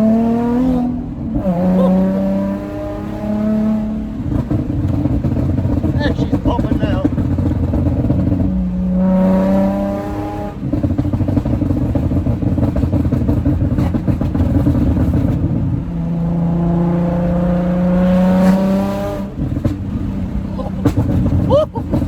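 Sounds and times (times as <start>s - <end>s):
car engine revving: 0.0s - 22.0s
exhaust popping: 0.0s - 22.0s
engine rough idle: 4.4s - 8.4s.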